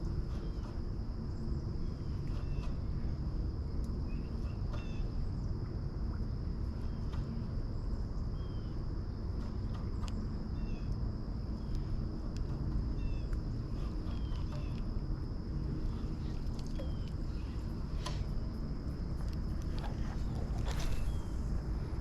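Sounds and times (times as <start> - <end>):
low rumble: 11.4 - 22.0.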